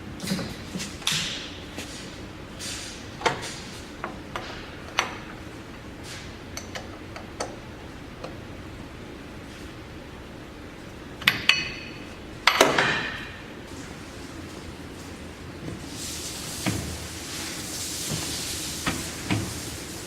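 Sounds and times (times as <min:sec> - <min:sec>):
sharp clicks and knocks: 0:06.6 - 0:07.6.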